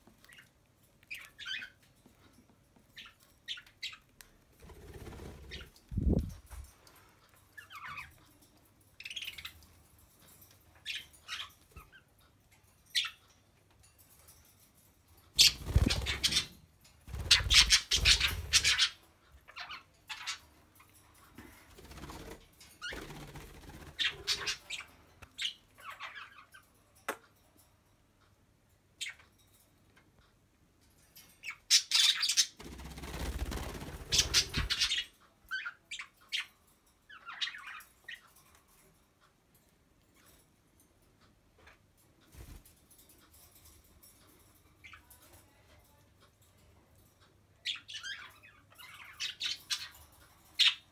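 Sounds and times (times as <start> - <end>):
birds rattling cage: 0.1 - 27.8, 30.8 - 50.9
budgies chirping and squawking: 15.4 - 16.6, 17.2 - 20.5, 23.8 - 26.6, 33.2 - 36.5.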